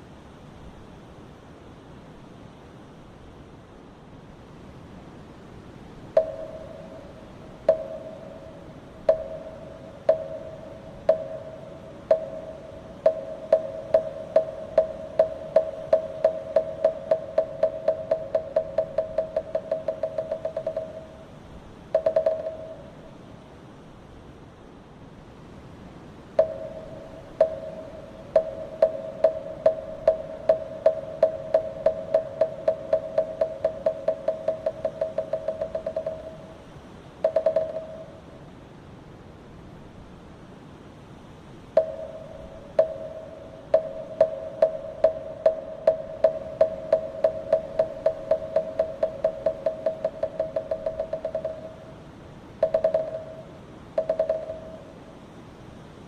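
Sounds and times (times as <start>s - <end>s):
wooden block struck with mallet: 6.2s - 21.3s, 21.9s - 23.0s, 26.4s - 36.6s, 37.2s - 38.2s, 41.8s - 52.0s, 52.6s - 54.9s.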